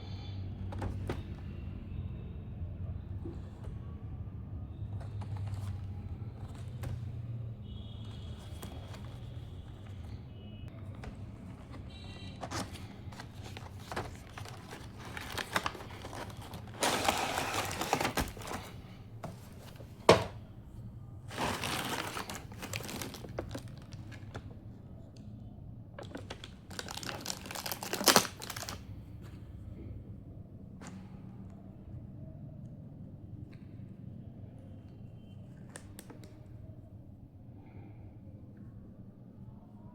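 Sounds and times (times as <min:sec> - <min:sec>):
packaging crinkling and tearing: 0:12.4 - 0:18.9, 0:21.3 - 0:24.4, 0:26.0 - 0:28.8.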